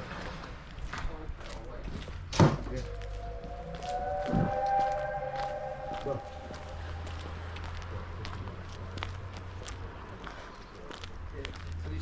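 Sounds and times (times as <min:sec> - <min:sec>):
crunching footsteps: 0:00.0 - 0:12.0
low hum: 0:02.9 - 0:08.4.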